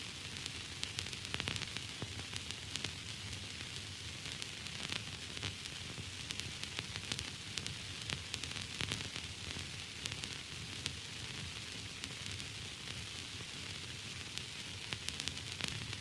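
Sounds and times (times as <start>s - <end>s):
static hiss: 0.0s - 16.0s
crackling clicks: 14.4s - 16.0s.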